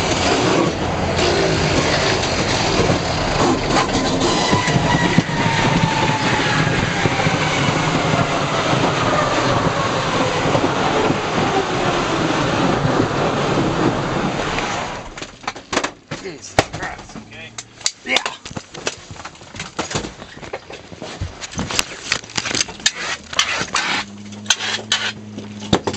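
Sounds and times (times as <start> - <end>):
aircraft engine roar: 0.0 - 15.3, 22.1 - 25.9.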